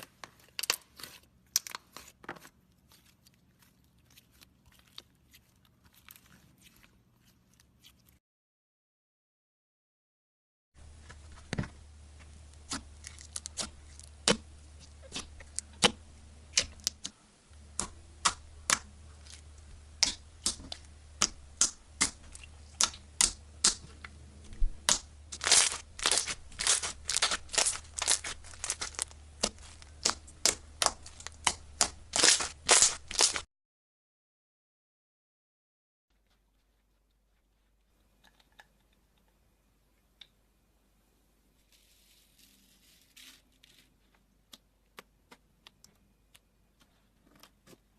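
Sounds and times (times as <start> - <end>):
low steady hum: 10.8 - 33.4.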